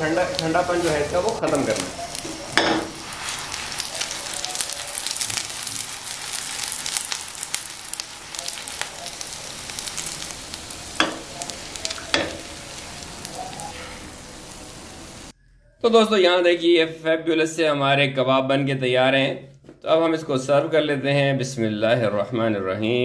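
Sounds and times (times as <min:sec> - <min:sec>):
food sizzling with crackling spatters: 0:00.0 - 0:15.3
spatula striking a pan: 0:02.2 - 0:03.0, 0:11.0 - 0:12.5.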